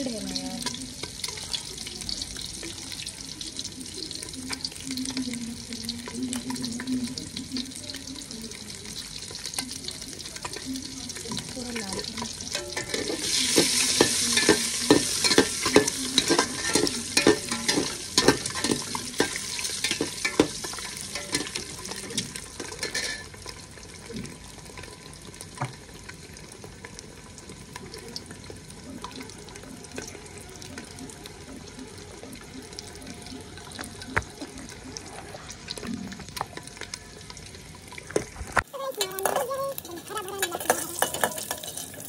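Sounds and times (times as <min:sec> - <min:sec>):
eggs sizzling in hot oil: 0:00.0 - 0:42.0
metal spatula scraping pot: 0:09.4 - 0:23.4, 0:38.8 - 0:42.0.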